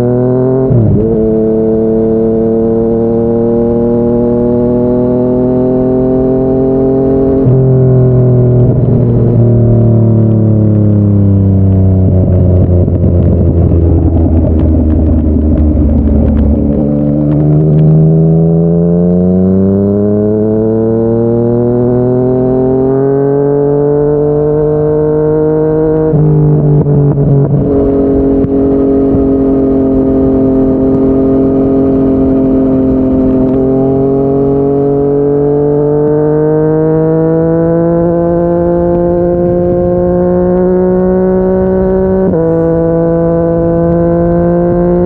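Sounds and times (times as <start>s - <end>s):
motorcycle engine revving: 0.0s - 45.0s
gear change: 11.8s - 21.6s.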